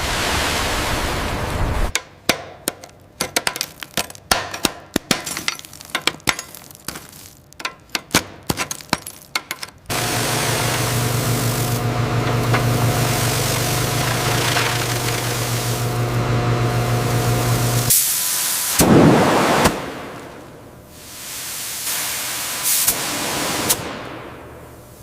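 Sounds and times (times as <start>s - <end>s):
sharp metallic clicks and clinks: 2.7s - 9.9s
steady hum with hiss: 9.8s - 25.0s.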